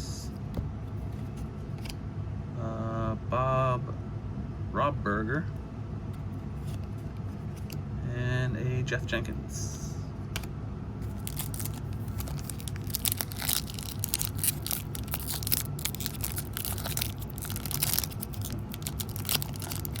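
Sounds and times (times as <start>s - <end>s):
steady low hum: 0.0s - 20.0s
wrapper crinkling and tearing: 11.1s - 20.0s.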